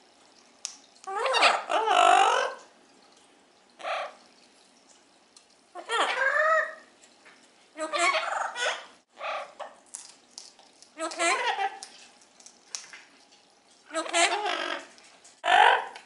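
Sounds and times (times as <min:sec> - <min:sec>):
parrots calling: 0:01.1 - 0:02.6, 0:03.8 - 0:04.2, 0:05.7 - 0:06.9, 0:07.8 - 0:09.8, 0:11.0 - 0:11.8, 0:13.9 - 0:16.0.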